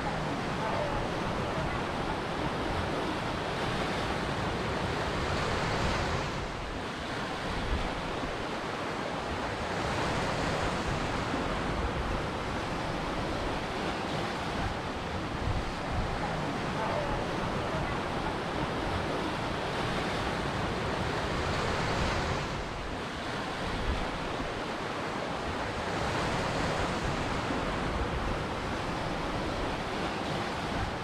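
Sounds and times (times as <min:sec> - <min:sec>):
ocean waves breaking: 0:00.0 - 0:31.0.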